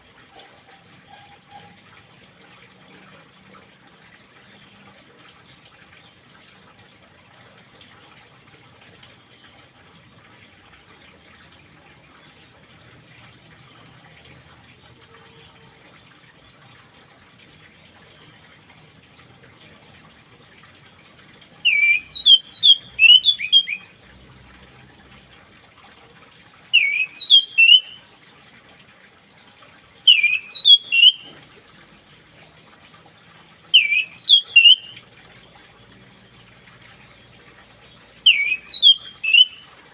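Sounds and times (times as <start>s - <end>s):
trickle of running water: 0.0s - 39.9s
thrush singing whistled phrases: 21.6s - 23.9s, 26.8s - 28.0s, 30.1s - 31.3s, 33.8s - 35.0s, 38.2s - 39.6s.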